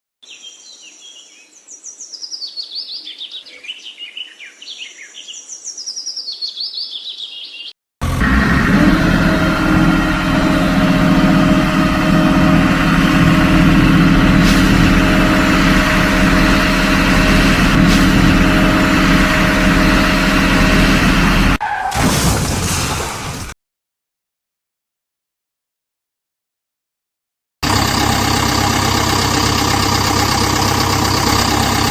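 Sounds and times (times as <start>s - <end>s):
birds chirping: 0.2s - 7.8s
loud engine running: 8.0s - 21.6s, 27.6s - 31.9s.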